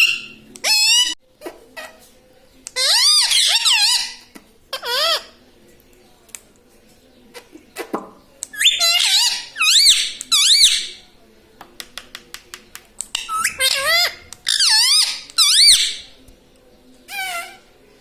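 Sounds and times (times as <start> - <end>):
parakeet squawking: 0.0 - 1.2, 2.7 - 5.4, 8.5 - 11.0, 13.2 - 16.2, 17.1 - 17.7.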